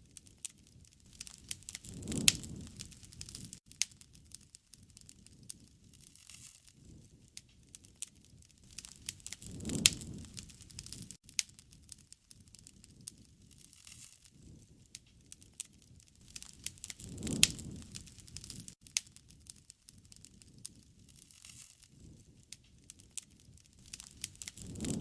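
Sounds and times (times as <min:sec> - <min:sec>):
bonfire crackling and popping: 0:00.0 - 0:25.0
rush of flame with loud pop: 0:01.1 - 0:03.6, 0:08.6 - 0:11.2, 0:16.2 - 0:19.4, 0:23.8 - 0:25.0.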